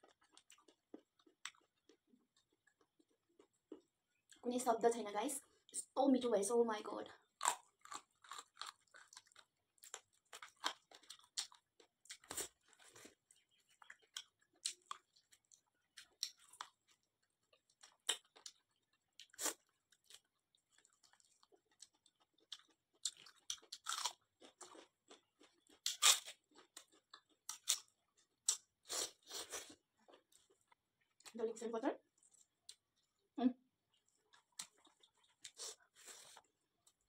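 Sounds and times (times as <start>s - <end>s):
chewing and biting meat: 0.0s - 4.0s, 7.3s - 28.8s.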